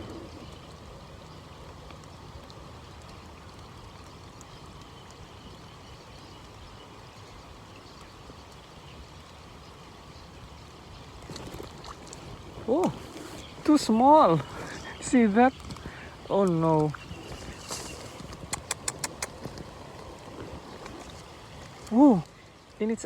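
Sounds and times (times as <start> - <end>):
water noise: 0.0 - 23.0
faint ticks: 0.4 - 6.6, 11.2 - 22.8.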